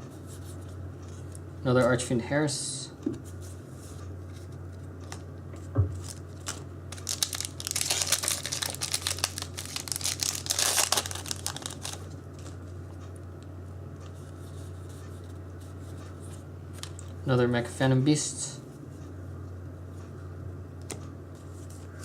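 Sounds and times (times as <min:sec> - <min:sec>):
foil wrapper tearing and crinkling: 0:06.0 - 0:12.6.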